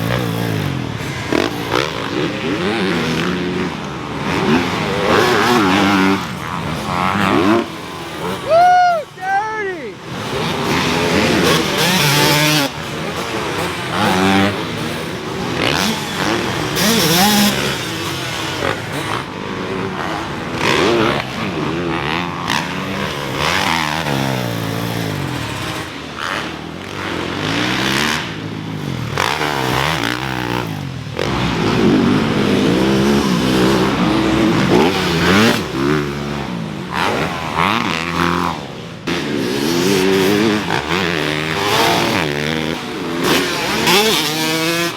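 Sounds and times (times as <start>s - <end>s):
dirt bike engines revving: 0.0s - 44.9s.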